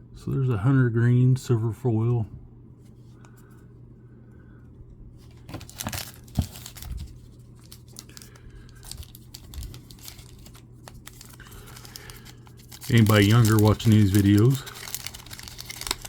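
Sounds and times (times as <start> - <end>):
faint steady hum: 0.0 - 16.0
wrapper crinkling and tearing: 5.3 - 16.0.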